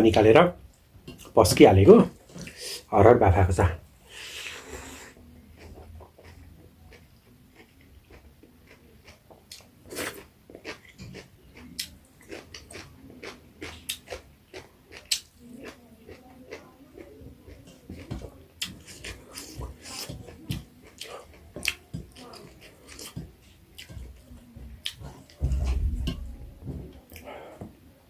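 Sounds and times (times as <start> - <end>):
wet chewing and lip-smacking: 5.6 - 26.3.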